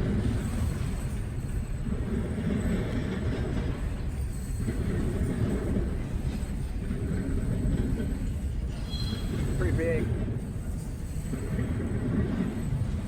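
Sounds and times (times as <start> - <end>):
freight train rumbling: 0.0 - 13.0
wheels clattering on rails: 0.0 - 13.0.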